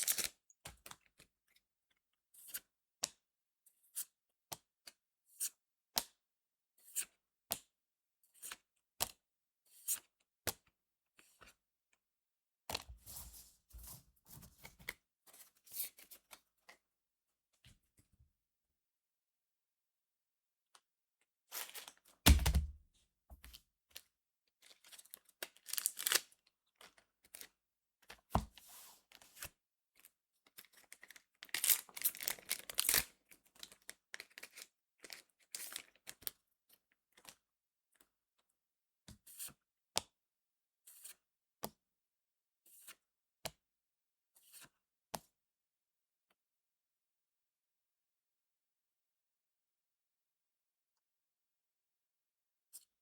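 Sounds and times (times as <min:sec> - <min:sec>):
plastic wrapper tearing and crinkling: 0:00.0 - 0:00.3, 0:25.6 - 0:26.2, 0:31.4 - 0:33.7
loud thump: 0:22.3 - 0:22.8.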